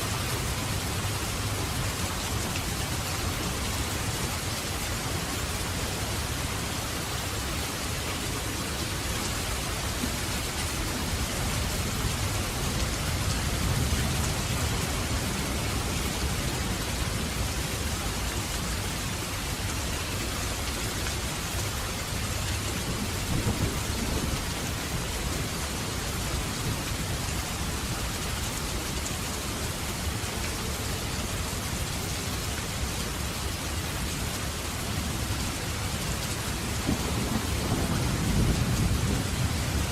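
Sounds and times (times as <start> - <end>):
heavy rain hissing: 0.0 - 39.9
low thunder rumbling: 22.8 - 25.2, 36.6 - 39.9.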